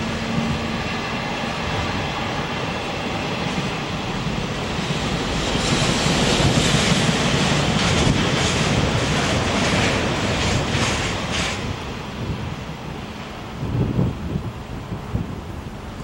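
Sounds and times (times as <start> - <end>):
freight train wheels rumbling: 0.0 - 16.0
faint rail clacks: 4.8 - 12.0.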